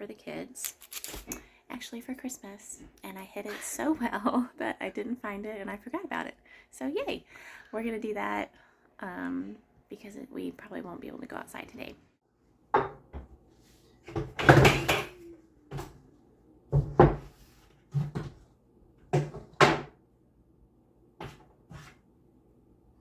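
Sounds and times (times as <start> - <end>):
household knocks and clunks: 12.7 - 13.4, 14.0 - 16.0, 16.7 - 20.0, 21.2 - 22.0.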